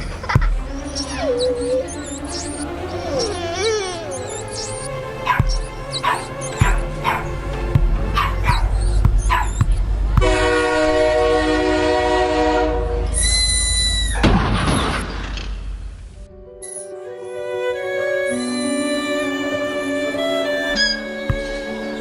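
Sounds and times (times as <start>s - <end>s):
dog whimpering: 0.2s - 7.4s, 8.2s - 9.8s
long held chord: 16.9s - 22.0s.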